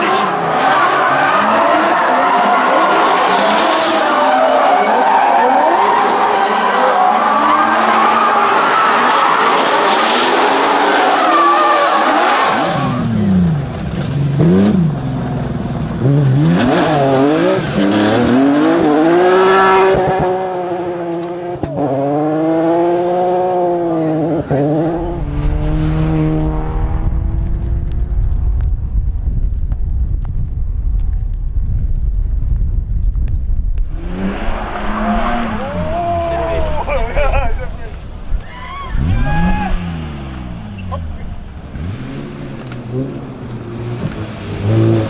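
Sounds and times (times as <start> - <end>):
rally car engine revving: 0.0 - 28.9, 33.8 - 45.0
low steady rumble: 25.0 - 34.1.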